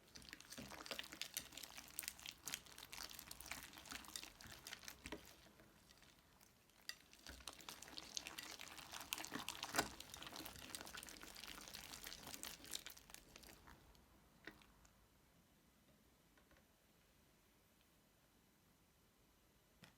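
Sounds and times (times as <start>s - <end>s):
slime crackling by hand: 0.0s - 14.8s.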